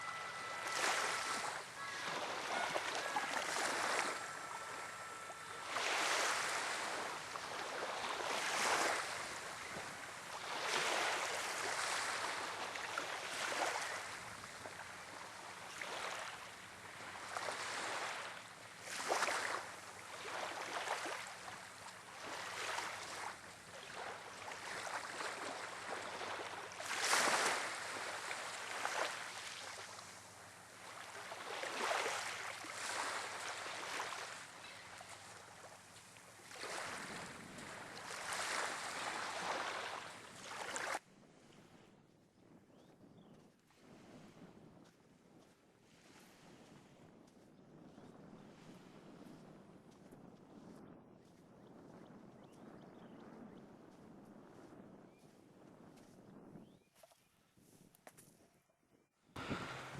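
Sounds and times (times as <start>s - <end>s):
waves breaking on shore: 0.0s - 41.0s, 59.4s - 59.9s.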